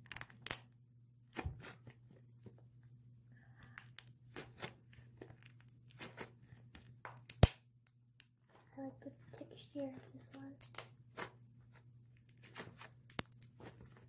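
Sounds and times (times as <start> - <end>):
slime squelching: 3.5 - 7.6.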